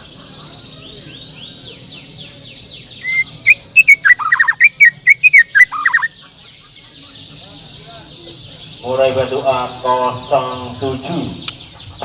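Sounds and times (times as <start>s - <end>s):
chorus of birds chirping: 0.0s - 12.0s
songbird whistling: 0.8s - 7.1s.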